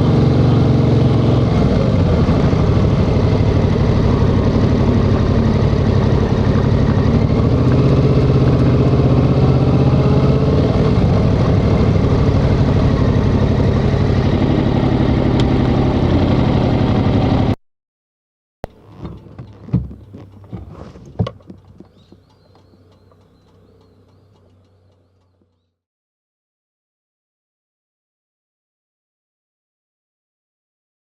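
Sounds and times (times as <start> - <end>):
motorcycle engine running: 0.0 - 17.6, 18.6 - 25.7.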